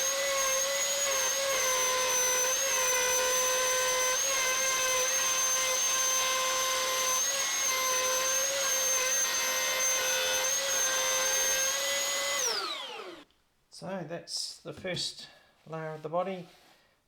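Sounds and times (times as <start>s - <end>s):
router running at full speed: 0.0s - 13.2s
router spinning down: 0.0s - 13.2s.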